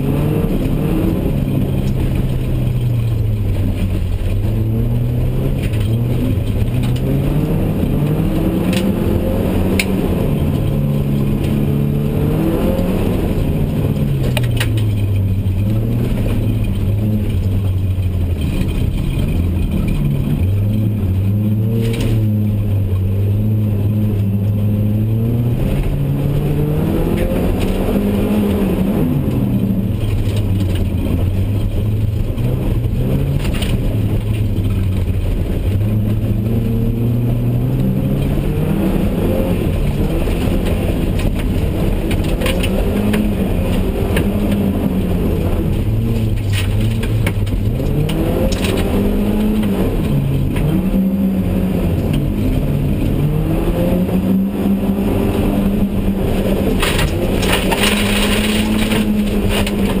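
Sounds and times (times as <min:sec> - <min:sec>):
car engine revving from cabin: 0:00.0 - 0:17.6, 0:18.3 - 1:00.0
sharp knocks and rattles: 0:13.4 - 0:21.2, 0:56.6 - 1:00.0.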